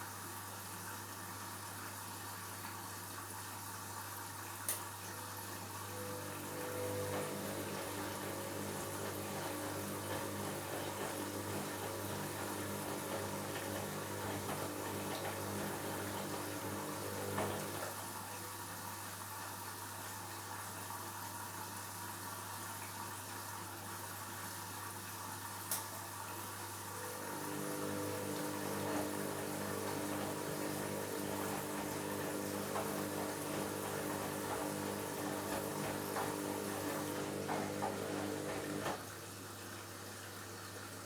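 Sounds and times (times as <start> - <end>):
washing machine drum motor humming: 5.3 - 18.2, 26.8 - 39.2
washing machine click: 6.4 - 17.9, 27.0 - 39.0.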